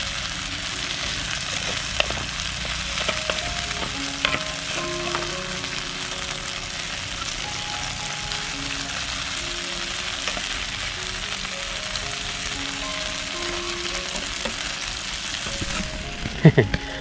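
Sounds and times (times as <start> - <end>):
shrimp frying in hot oil: 0.0 - 17.0.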